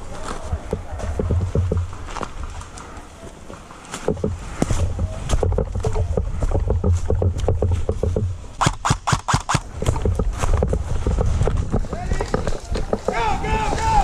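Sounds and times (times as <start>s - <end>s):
sharp cracks: 8.6s - 14.0s.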